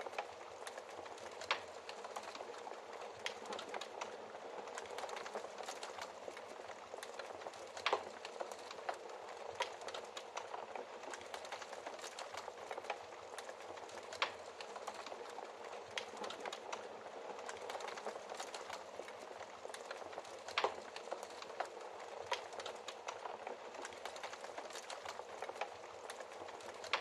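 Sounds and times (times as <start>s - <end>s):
wood fire crackling: 0.0s - 27.0s.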